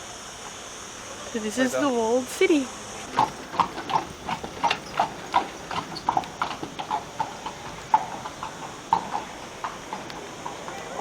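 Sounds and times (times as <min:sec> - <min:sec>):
horse hooves clip-clopping on stone: 0:03.0 - 0:11.0.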